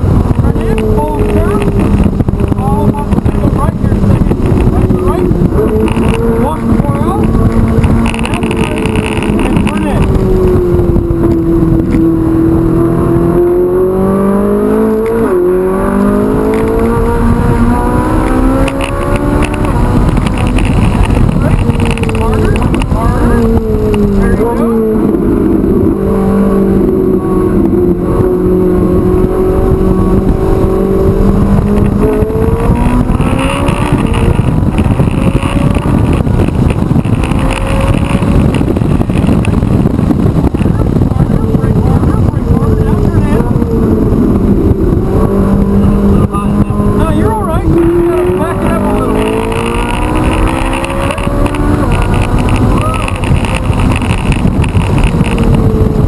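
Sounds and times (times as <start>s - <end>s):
road and wind noise: 0.0s - 56.0s
sports car engine revving: 0.0s - 56.0s.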